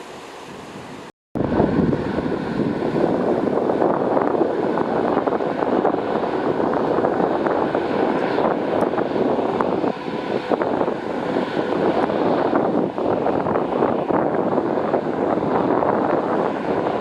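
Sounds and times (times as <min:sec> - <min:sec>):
wind buffeting microphone: 0:00.4 - 0:17.0.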